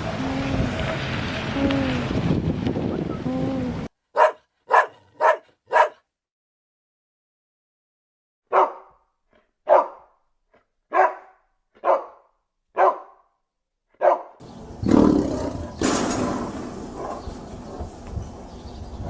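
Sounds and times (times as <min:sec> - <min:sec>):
dog barking: 0:04.1 - 0:06.0, 0:08.5 - 0:09.0, 0:09.6 - 0:10.2, 0:10.9 - 0:13.3, 0:14.0 - 0:14.4, 0:17.0 - 0:17.9.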